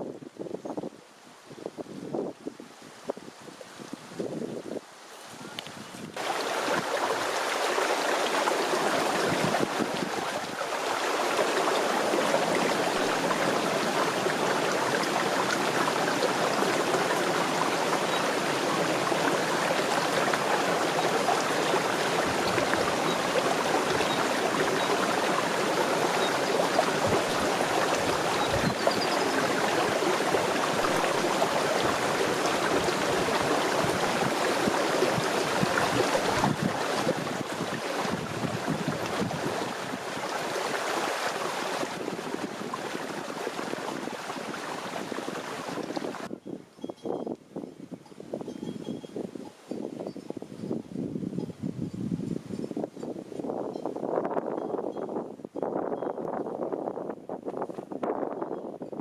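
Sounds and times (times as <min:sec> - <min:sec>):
rushing running water: 0:00.0 - 0:46.3.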